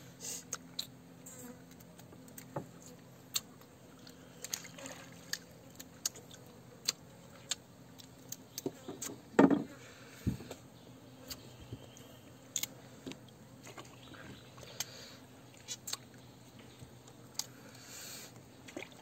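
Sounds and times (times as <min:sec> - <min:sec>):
faint low hum: 0:00.0 - 0:19.0
person chewing fruit: 0:00.5 - 0:01.0, 0:01.7 - 0:08.9, 0:15.6 - 0:16.2, 0:17.0 - 0:17.6.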